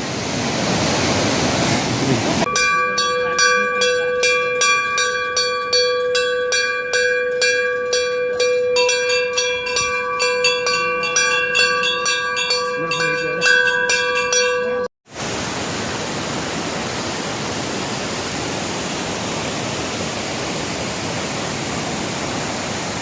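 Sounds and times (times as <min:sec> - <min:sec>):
rushing river water: 0:00.0 - 0:07.3, 0:15.1 - 0:23.0
metal temple bells ringing: 0:02.4 - 0:14.9.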